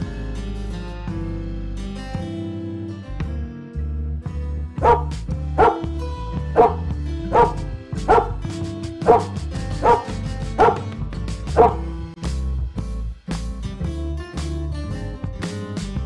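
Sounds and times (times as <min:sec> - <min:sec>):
guitar background music: 0:00.0 - 0:16.0
dog barking: 0:04.8 - 0:05.9, 0:06.6 - 0:08.4, 0:09.0 - 0:10.9, 0:11.6 - 0:11.9.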